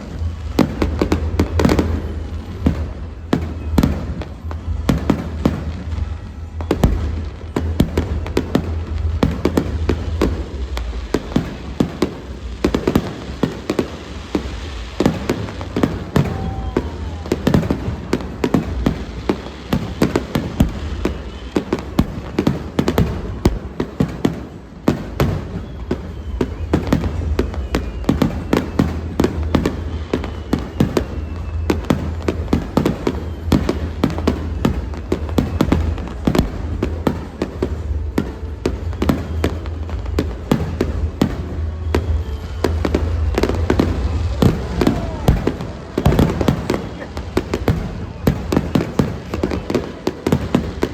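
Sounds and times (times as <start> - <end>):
fireworks bangs and crackles: 0.0 - 50.9.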